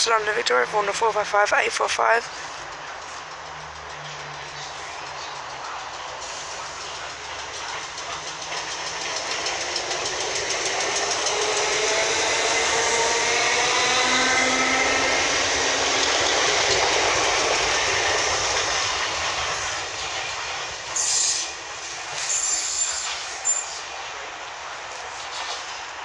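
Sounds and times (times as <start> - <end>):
train wheels rumbling on rails: 0.0 - 26.0
train motor whine: 2.3 - 26.0
brief high squeals: 22.2 - 23.8.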